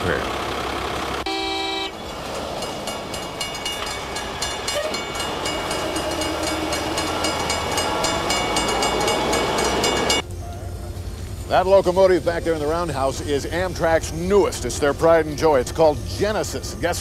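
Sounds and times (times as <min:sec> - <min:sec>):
rail wheels clicking on track: 0:01.9 - 0:10.3
rising tone: 0:01.9 - 0:10.4.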